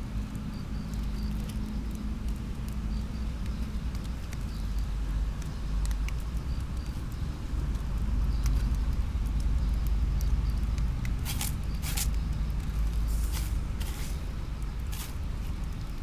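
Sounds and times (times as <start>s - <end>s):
sorting machine humming: 13.0s - 16.0s
short hissing bursts: 13.1s - 14.3s.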